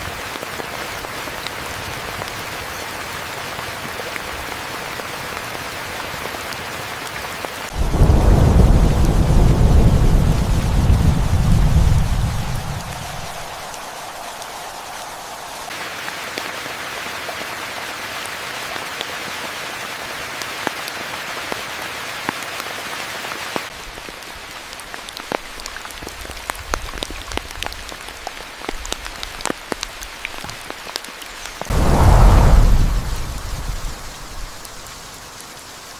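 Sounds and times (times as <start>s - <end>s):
rain falling: 7.5s - 17.4s, 27.5s - 35.9s
raindrops ticking: 7.8s - 15.7s
thunder rumble: 7.8s - 15.7s, 31.7s - 35.4s.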